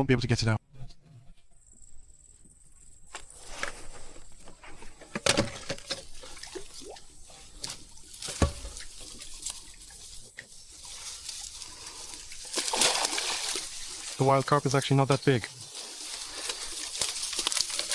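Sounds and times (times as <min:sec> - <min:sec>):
water splashing and sloshing: 0:04.5 - 0:17.9.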